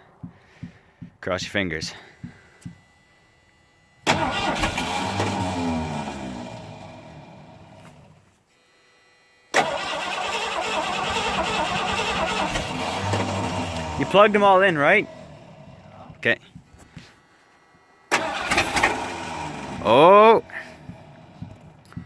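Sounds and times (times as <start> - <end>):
car engine starter cranking: 4.0 - 6.9, 9.5 - 15.9, 18.1 - 22.0.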